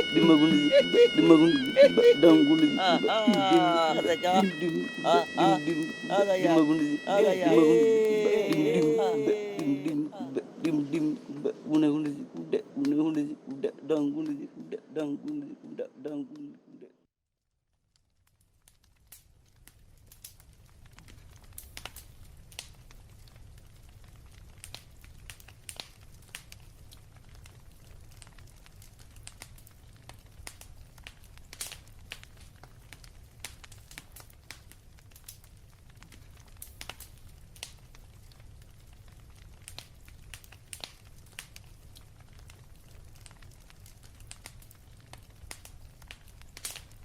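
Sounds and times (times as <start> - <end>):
faint crackling and clicking: 17.9 - 47.0.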